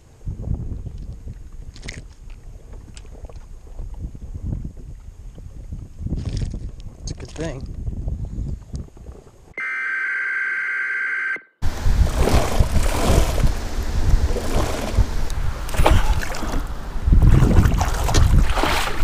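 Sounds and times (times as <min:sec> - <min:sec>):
wind buffeting microphone: 0:00.0 - 0:09.6, 0:11.6 - 0:19.0
water splashing and lapping: 0:01.4 - 0:04.1, 0:11.6 - 0:19.0
steady high tone: 0:09.6 - 0:11.6.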